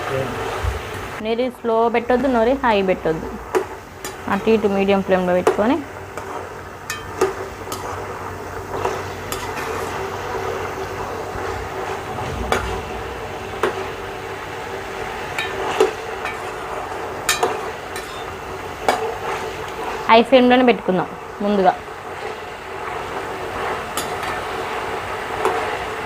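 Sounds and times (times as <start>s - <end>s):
chicken frying in hot oil: 0.0s - 12.1s, 13.8s - 26.0s
spatula scraping pan: 17.3s - 18.3s.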